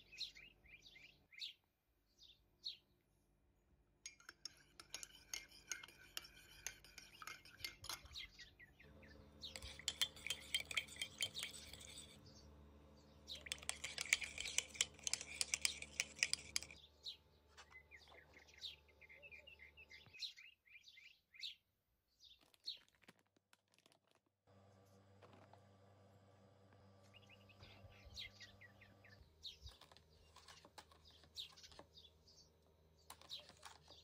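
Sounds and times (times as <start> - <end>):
small birds chirping: 0.0 - 3.3, 4.0 - 23.0, 27.0 - 34.0
low steady hum: 8.8 - 20.0, 24.5 - 33.8.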